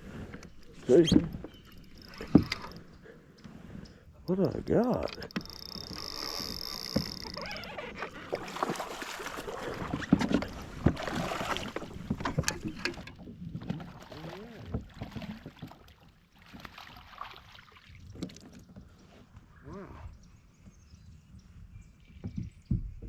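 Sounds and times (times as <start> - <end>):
water splashing and sloshing: 0.0 - 19.6
sharp knocks and clicks: 1.2 - 2.9, 4.9 - 7.4, 11.7 - 13.2.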